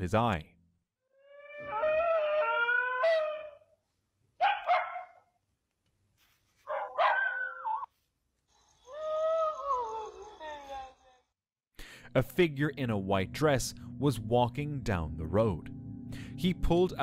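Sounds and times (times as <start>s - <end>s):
dog whimpering: 1.1s - 3.6s.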